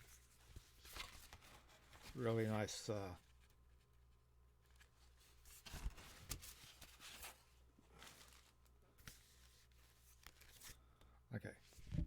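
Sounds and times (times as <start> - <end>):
rustling of paper and plastic: 4.8 - 10.7.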